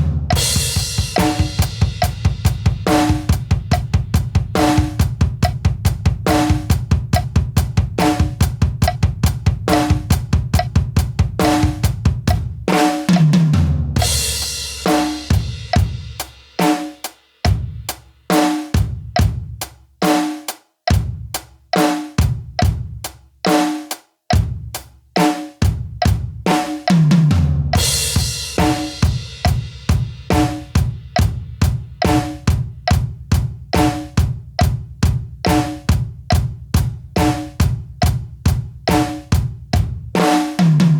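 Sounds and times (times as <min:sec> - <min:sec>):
tom fill: 0:00.0 - 0:17.9, 0:26.0 - 0:40.9
drum kit groove: 0:00.0 - 0:40.9.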